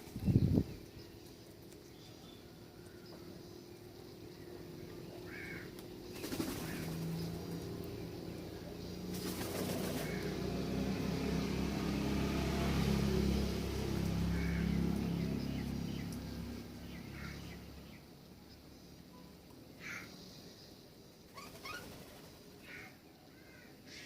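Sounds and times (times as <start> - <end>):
vehicle engine hum passing: 0.0 - 19.1.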